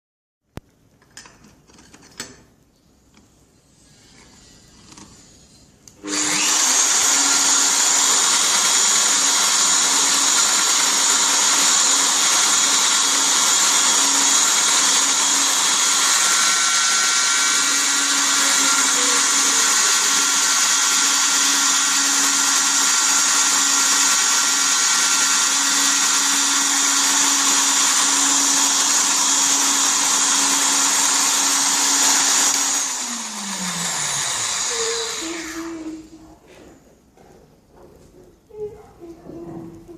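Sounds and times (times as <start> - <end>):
electric motor hum and hiss: 3.8 - 36.2
motor winding down: 6.0 - 36.1.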